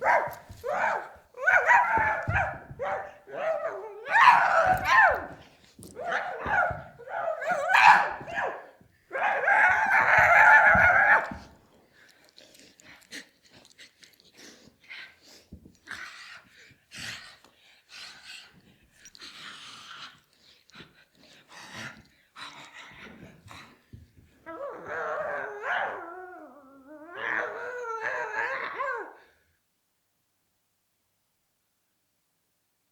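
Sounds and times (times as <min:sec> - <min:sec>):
dog-like whining and yelping: 0:00.0 - 0:11.5, 0:24.5 - 0:29.2
faint clicks and mouth sounds: 0:11.2 - 0:16.1, 0:17.2 - 0:23.0.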